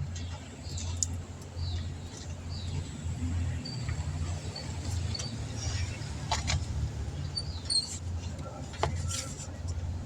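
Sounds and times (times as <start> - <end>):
small birds chirping: 0.2 - 3.0.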